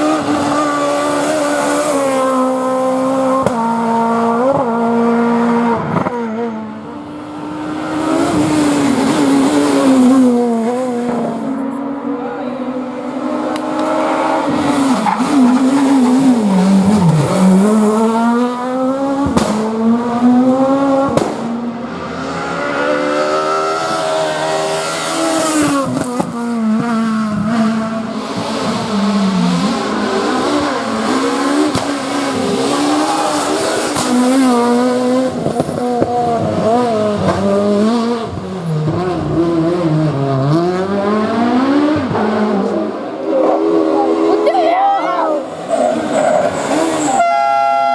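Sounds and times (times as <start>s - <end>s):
rally car engine at high revs: 0.0s - 47.9s
sharp cracks: 19.1s - 21.7s, 31.6s - 36.2s.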